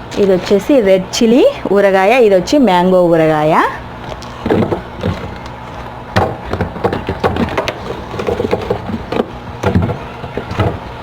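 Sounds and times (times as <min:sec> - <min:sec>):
low steady hum: 0:00.0 - 0:11.0
jars knocking on shelf: 0:06.1 - 0:10.9.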